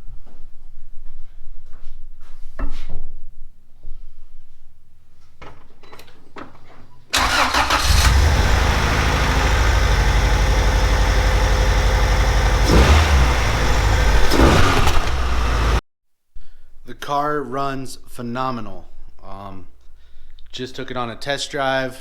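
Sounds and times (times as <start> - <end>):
car engine cranking and idling: 7.2 - 15.8
engine revving: 7.2 - 15.8.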